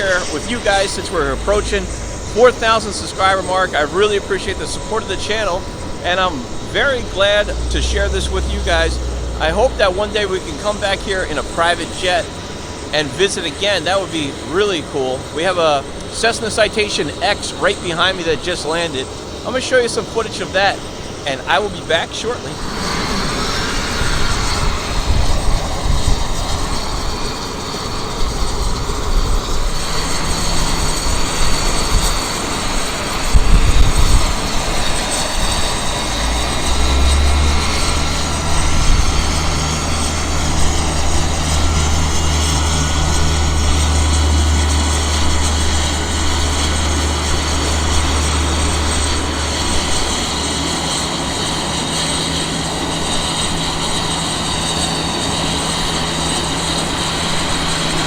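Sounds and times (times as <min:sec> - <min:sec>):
jet engines whining: 0:00.0 - 0:58.0
low drone: 0:00.0 - 0:58.0
wind rumble on microphone: 0:22.6 - 0:55.0.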